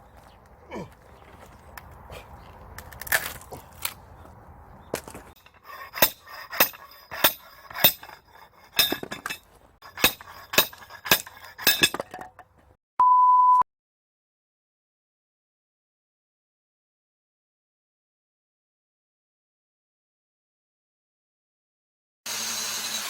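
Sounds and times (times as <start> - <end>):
short steady beep: 13.0 - 13.6.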